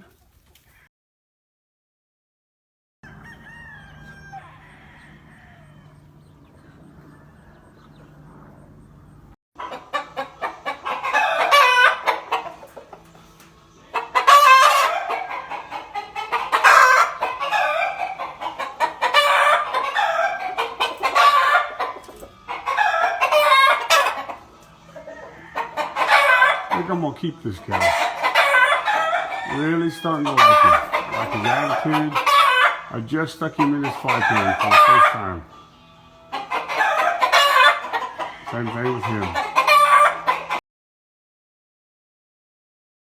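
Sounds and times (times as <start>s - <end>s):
roosters crowing: 3.0s - 40.6s
faint low hum: 4.5s - 9.4s.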